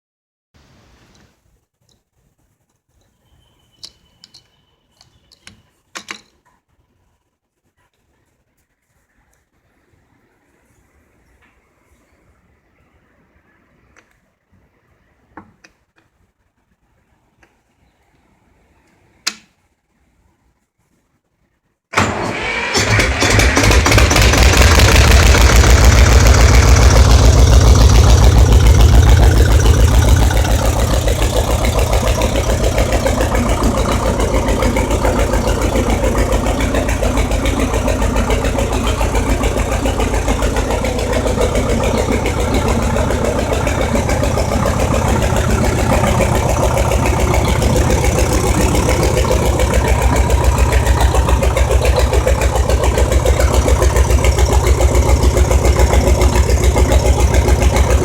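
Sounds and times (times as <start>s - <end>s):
tractor engine running: 21.9s - 58.0s.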